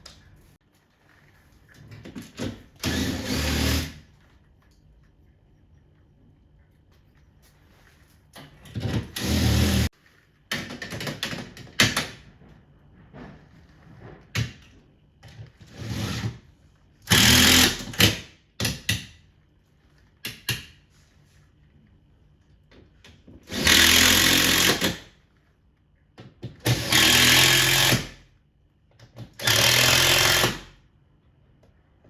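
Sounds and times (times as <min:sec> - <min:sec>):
electric drill bursts: 0:02.8 - 0:04.0, 0:09.2 - 0:09.9, 0:17.1 - 0:18.0, 0:23.5 - 0:25.0, 0:26.7 - 0:28.1, 0:29.4 - 0:30.7.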